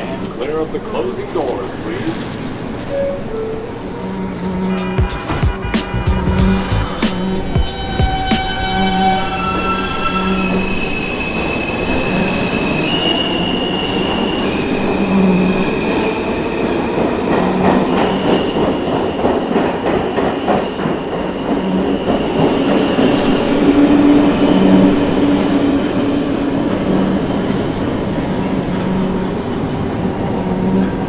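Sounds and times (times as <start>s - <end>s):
subway train rumble and whine: 0.0s - 31.0s.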